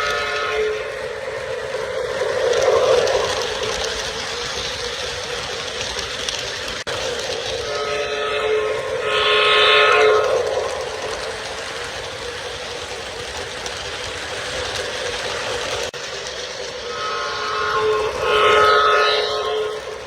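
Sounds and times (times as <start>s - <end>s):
model train diesel horn: 0.0s - 1.2s, 7.4s - 11.2s, 16.8s - 20.0s
model train running noise: 0.0s - 20.0s.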